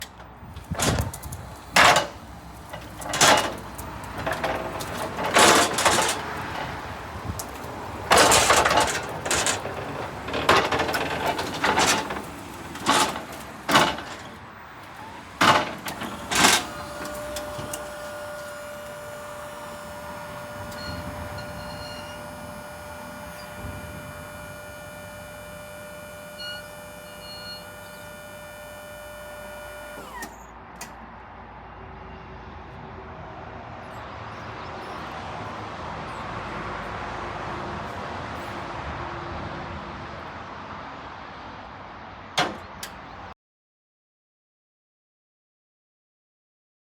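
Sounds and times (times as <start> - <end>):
electric motor whine: 14.9 - 30.3.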